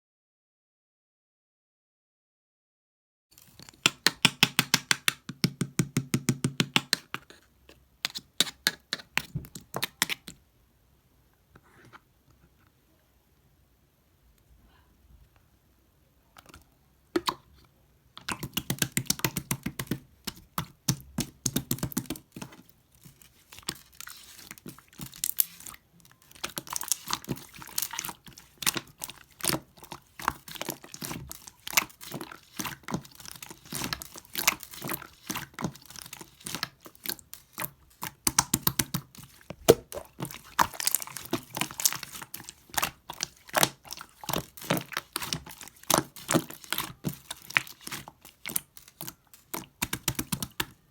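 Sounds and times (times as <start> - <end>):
slime squishing with sticky clicks: 18.2 - 50.9.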